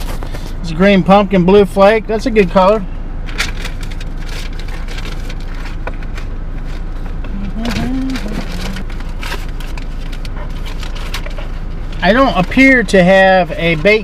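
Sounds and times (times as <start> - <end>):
car idling: 0.0 - 14.0
plastic packaging crinkling: 3.3 - 6.9, 7.6 - 11.4
person humming: 7.3 - 8.9.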